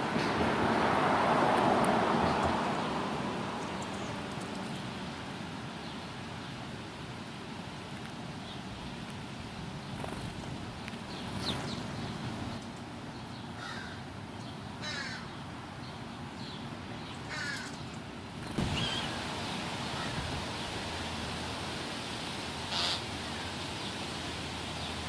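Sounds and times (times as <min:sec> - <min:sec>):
outdoor background noise: 0:00.0 - 0:25.0
crows cawing: 0:13.6 - 0:14.1, 0:14.8 - 0:15.3, 0:17.3 - 0:17.8, 0:22.7 - 0:23.1.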